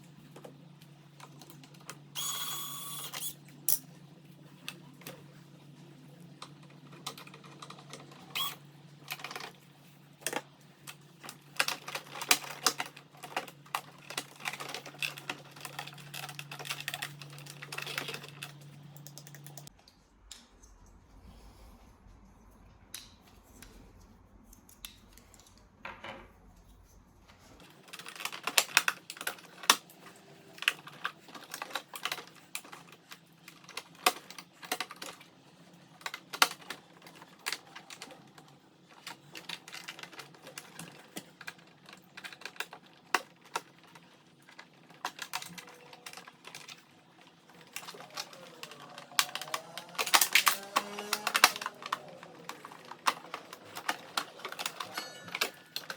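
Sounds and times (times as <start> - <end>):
tools and parts clicking: 1.2 - 3.9, 10.2 - 20.7, 36.0 - 55.9.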